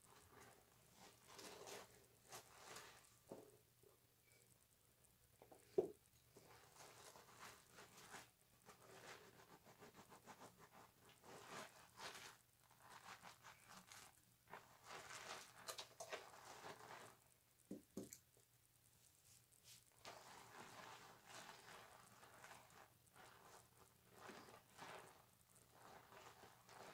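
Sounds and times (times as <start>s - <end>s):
soap lathering squishing: 20.0s - 26.9s.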